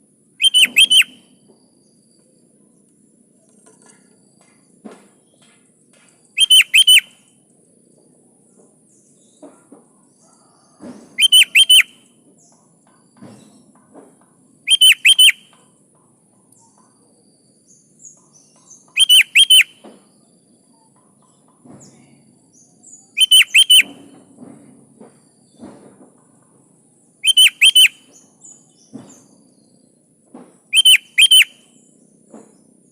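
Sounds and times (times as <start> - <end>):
bird calling: 0.4 - 1.3, 6.4 - 7.3, 10.4 - 12.1, 14.7 - 15.7, 18.7 - 20.0, 23.1 - 24.2, 27.2 - 28.2, 30.7 - 31.8.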